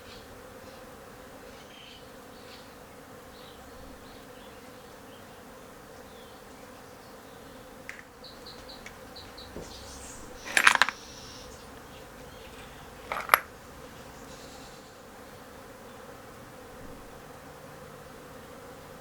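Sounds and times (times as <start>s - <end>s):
faint hum: 6.0s - 16.2s
small metal objects clattering: 10.3s - 11.1s, 12.5s - 13.5s.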